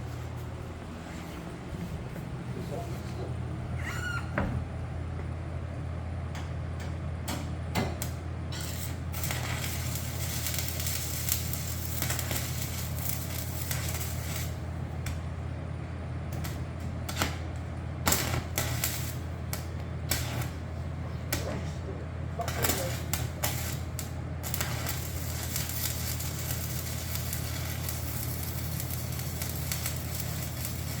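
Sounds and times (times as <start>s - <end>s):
low electrical hum: 0.0s - 31.0s
welding arc crackling and hissing: 8.0s - 15.4s, 16.3s - 31.0s.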